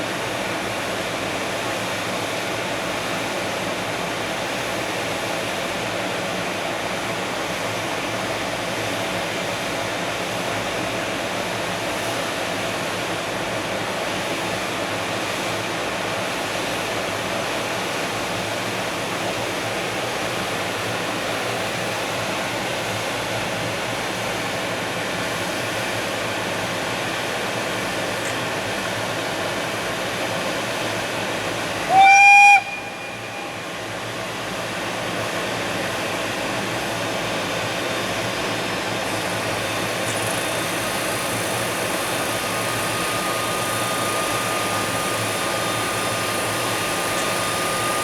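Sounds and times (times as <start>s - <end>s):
electric locomotive humming: 21.6s - 48.0s.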